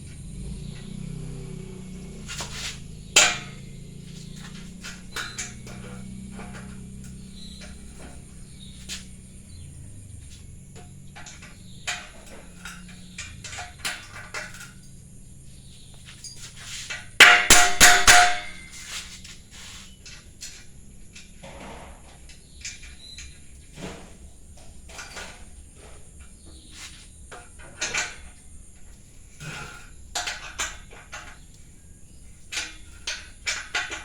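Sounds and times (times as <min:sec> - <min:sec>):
steel parts knocking and clinking: 0:02.3 - 0:19.2, 0:27.3 - 0:34.0
hammer blows on steel: 0:17.2 - 0:19.0.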